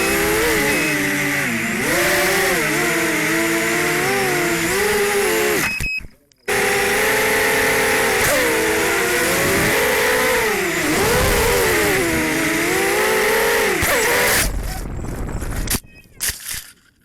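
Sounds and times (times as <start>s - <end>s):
quadcopter motors whining: 0.0s - 16.3s
rough noise: 6.5s - 16.5s.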